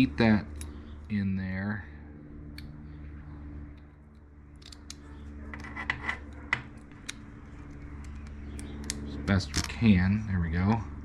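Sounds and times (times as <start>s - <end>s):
steady low hum: 0.0s - 11.0s
sharp metal clicks: 3.7s - 5.2s, 6.2s - 9.8s
small metal parts scraping: 4.6s - 8.3s.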